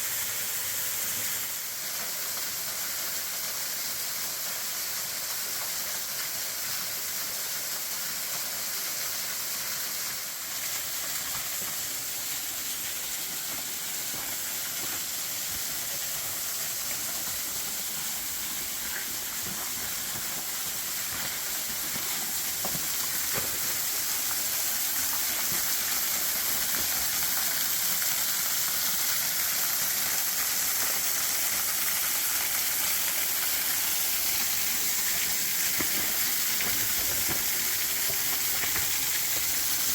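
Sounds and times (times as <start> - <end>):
waterfall rushing: 10.2 - 39.9.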